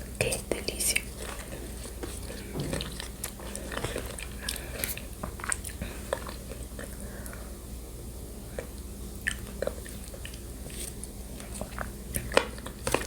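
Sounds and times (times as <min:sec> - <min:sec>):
person chewing with wet clicks: 0:00.0 - 0:07.5, 0:08.4 - 0:13.0.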